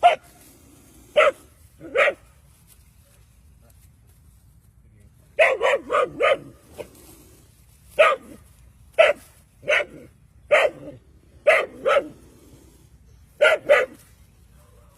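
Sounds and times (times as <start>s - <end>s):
dog barking: 0.0s - 0.3s, 1.2s - 2.2s, 5.4s - 6.6s, 8.0s - 8.4s, 9.0s - 12.2s, 13.4s - 14.0s.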